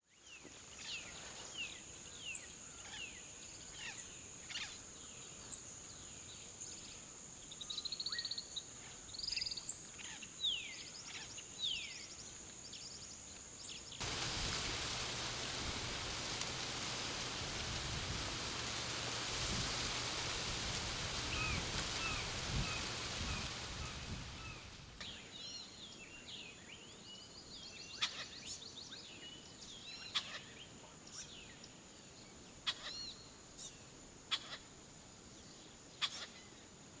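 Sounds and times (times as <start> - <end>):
high insect drone: 14.0 - 25.0
steady rushing noise: 14.0 - 25.0
birds calling: 14.0 - 25.1.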